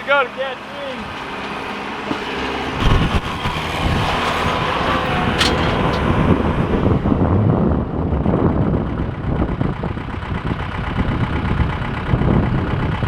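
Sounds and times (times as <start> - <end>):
tractor engine running: 0.1 - 13.0
sharp metal clank: 4.2 - 6.2.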